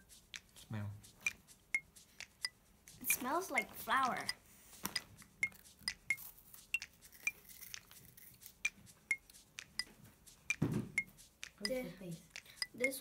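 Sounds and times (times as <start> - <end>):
cookie crunching: 6.0 - 8.6
soft thump: 10.6 - 11.1.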